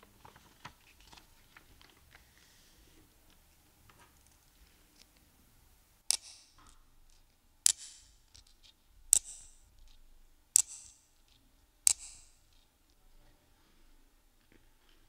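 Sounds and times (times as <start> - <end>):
sharp metallic clicks with ringing: 10.6 - 11.1, 11.8 - 12.4.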